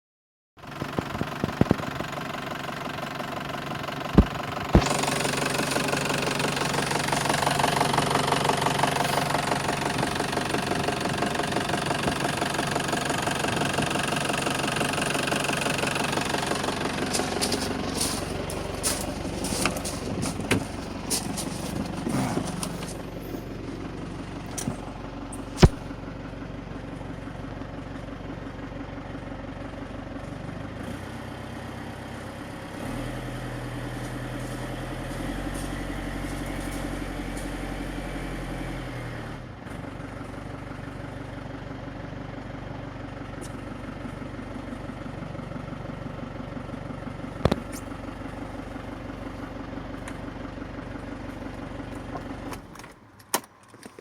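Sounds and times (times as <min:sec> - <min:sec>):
van engine idling: 0:00.6 - 0:54.0
sharp click: 0:25.4 - 0:25.9.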